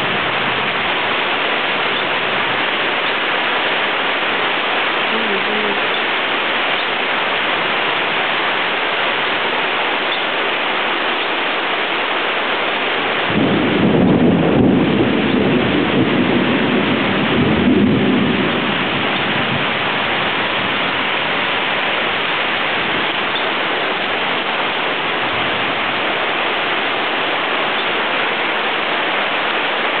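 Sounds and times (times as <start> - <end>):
heavy rain falling: 0.0 - 30.0
rolling thunder: 13.2 - 21.4.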